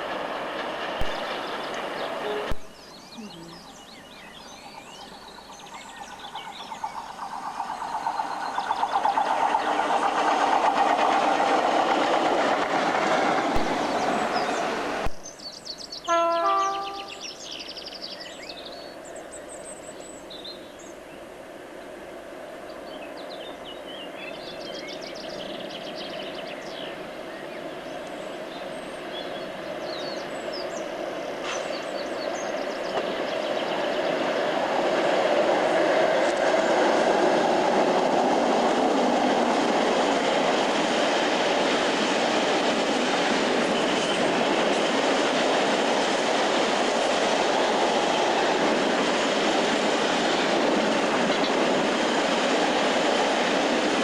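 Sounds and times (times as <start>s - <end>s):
freight train wagons on rails: 0.0s - 54.0s
birds chirping: 1.1s - 10.7s, 13.7s - 35.1s.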